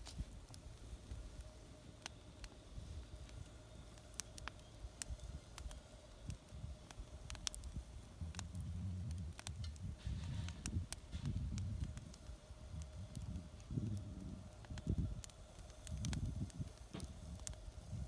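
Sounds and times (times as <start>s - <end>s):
wood fire crackling: 0.0s - 18.0s
low rumble: 4.4s - 18.0s.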